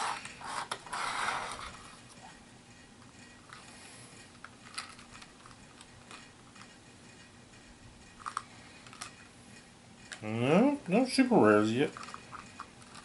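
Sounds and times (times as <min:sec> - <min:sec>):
plastic pieces clicking: 0:04.3 - 0:06.8, 0:11.9 - 0:13.0.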